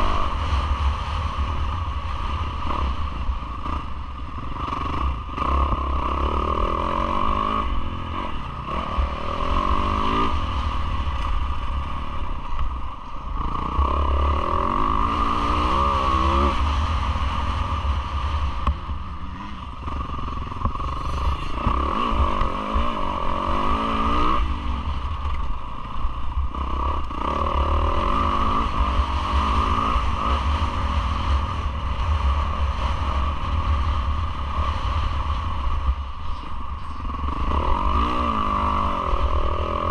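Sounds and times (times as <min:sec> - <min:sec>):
motocross engine revving: 0:03.6 - 0:10.7, 0:18.3 - 0:25.1, 0:36.8 - 0:39.9.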